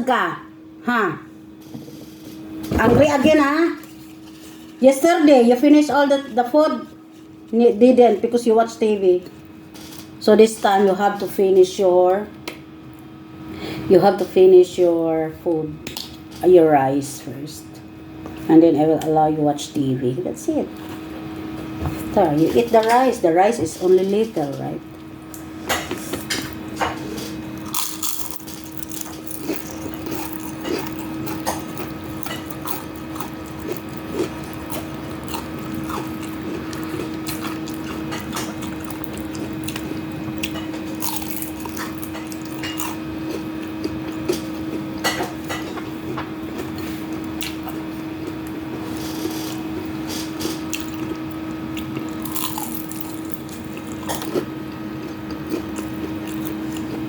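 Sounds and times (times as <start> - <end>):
wet chewing and smacking: 26.4 - 48.6, 49.5 - 57.0.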